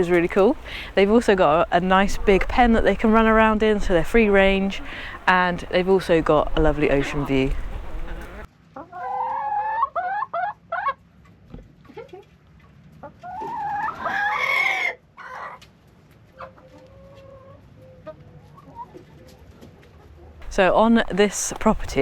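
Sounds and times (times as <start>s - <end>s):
chickens clucking: 0.0s - 11.0s, 13.0s - 22.0s.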